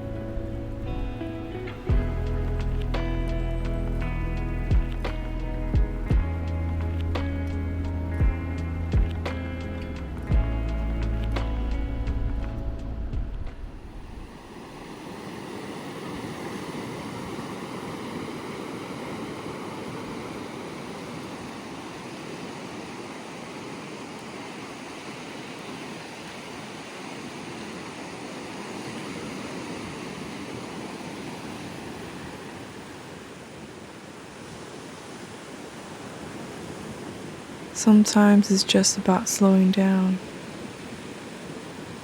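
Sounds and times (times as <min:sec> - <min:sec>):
background music: 0:00.0 - 0:14.2
ocean surf breaking: 0:00.0 - 0:42.0.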